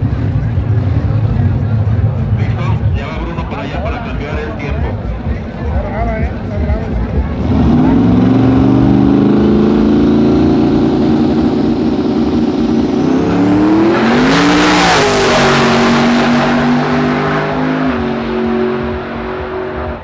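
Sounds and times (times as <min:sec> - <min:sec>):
engine revving high with whine: 0:07.4 - 0:20.0.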